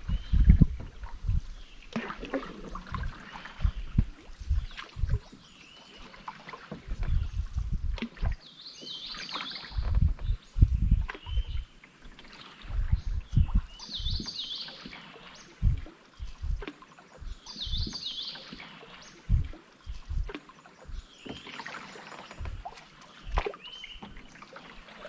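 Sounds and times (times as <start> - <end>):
low thumps: 0.0 - 1.6, 3.6 - 5.3, 6.8 - 8.4, 9.8 - 11.6, 12.8 - 14.2, 15.6 - 16.6, 19.3 - 21.1, 22.4 - 22.7
paddle strokes and splashes: 0.0 - 25.0
songbird singing: 0.0 - 25.0.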